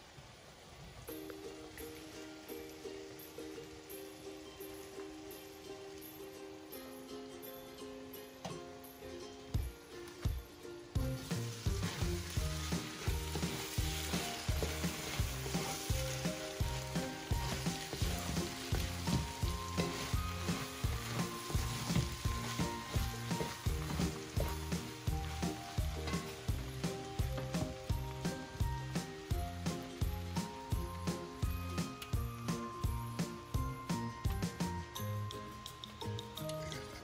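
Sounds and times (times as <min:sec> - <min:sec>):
rice sizzling in a pot: 0:10.9 - 0:35.6
wooden spatula stirring: 0:11.0 - 0:28.6.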